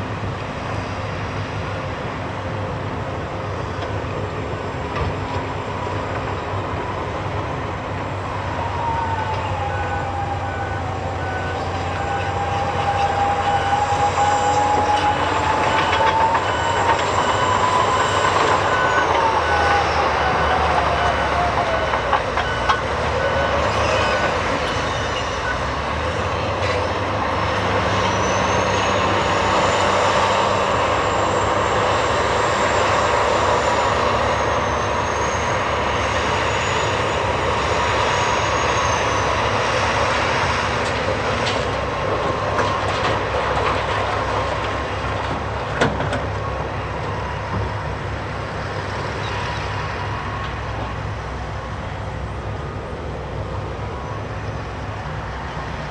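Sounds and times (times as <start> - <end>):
diesel engines under load: 0.0 - 55.9
high-pitched metallic squeal: 8.6 - 44.5.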